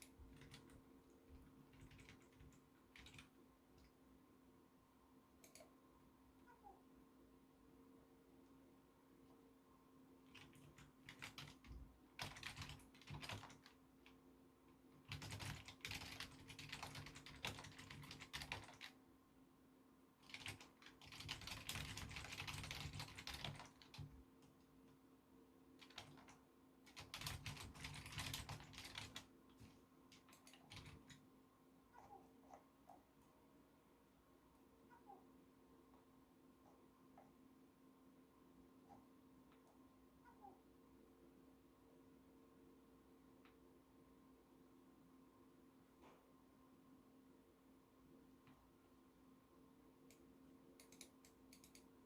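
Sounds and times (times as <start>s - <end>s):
typing on computer keyboard: 0.0s - 3.4s, 10.3s - 14.2s, 15.0s - 19.0s, 20.2s - 24.2s, 25.8s - 29.3s, 30.1s - 31.2s, 50.8s - 51.9s.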